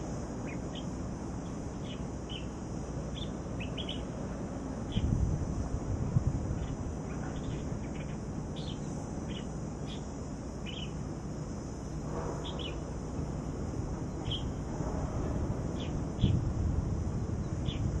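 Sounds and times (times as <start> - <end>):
low outdoor rumble: 0.0 - 18.0
steady high-pitched hiss: 0.0 - 18.0
small birds chirping: 0.4 - 4.2, 4.8 - 5.1, 6.6 - 11.0, 11.9 - 12.9, 14.1 - 14.6, 17.4 - 18.0.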